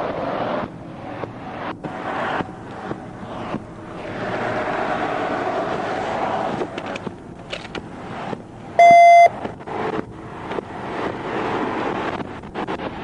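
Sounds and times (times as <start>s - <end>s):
steady rushing noise: 0.0s - 13.0s
electronic beep: 8.8s - 9.3s.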